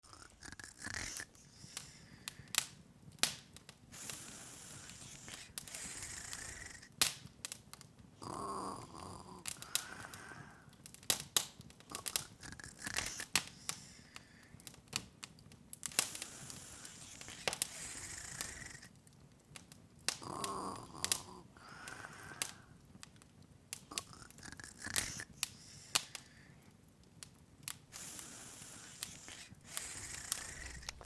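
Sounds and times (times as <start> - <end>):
wood fire crackling and popping: 0.8 - 31.0
fluttering hiss: 3.9 - 7.0, 15.9 - 18.9, 27.9 - 31.0.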